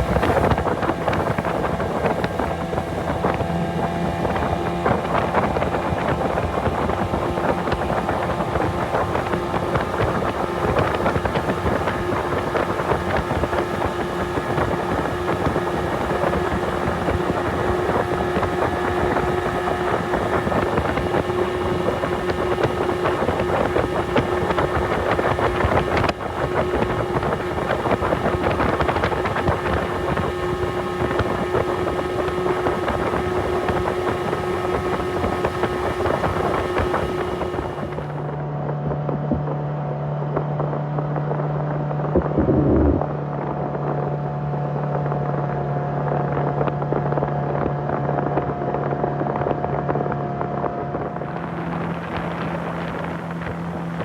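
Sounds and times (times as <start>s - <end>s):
water rushing past hull: 0.0s - 38.4s, 50.8s - 54.0s
outboard motor running: 0.0s - 54.0s
wind buffeting microphone: 0.0s - 54.0s.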